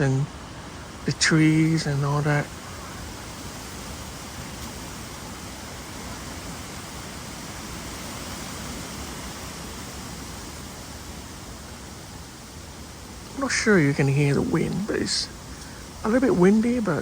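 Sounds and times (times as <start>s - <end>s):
wind blowing through trees: 0.0s - 17.0s.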